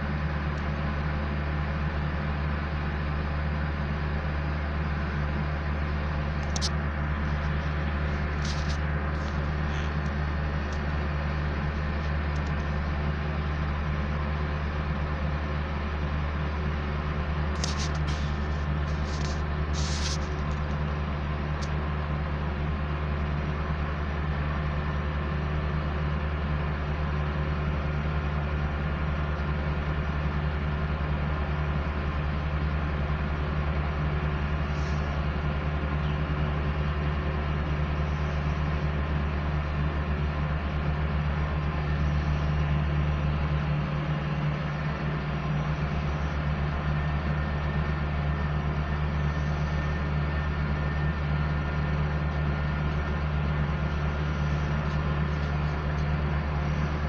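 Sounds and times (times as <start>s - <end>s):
heavy machinery engine humming: 0.0s - 57.0s
short high clicks or scrapes: 17.5s - 20.6s.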